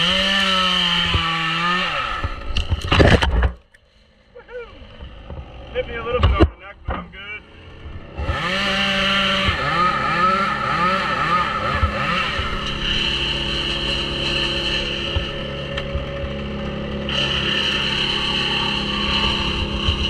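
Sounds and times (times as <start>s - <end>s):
small gasoline engine running: 7.4s - 20.0s.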